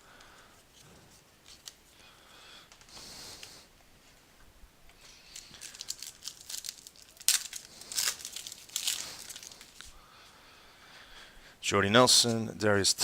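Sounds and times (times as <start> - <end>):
wrapper crinkling and tearing: 5.0 - 9.9.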